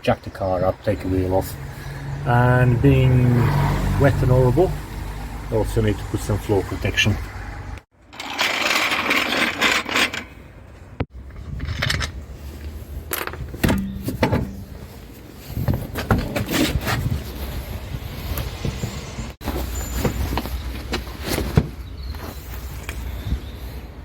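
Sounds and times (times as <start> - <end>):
rustling and scraping: 8.1 - 23.9.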